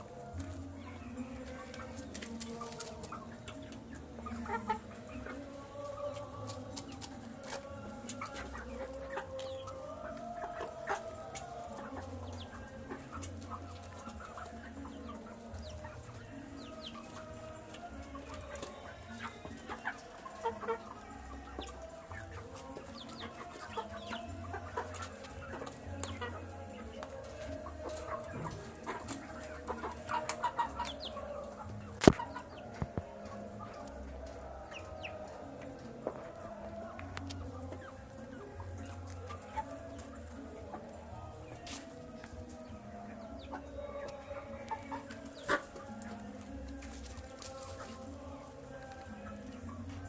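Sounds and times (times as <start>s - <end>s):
young chickens calling: 0.0s - 50.0s.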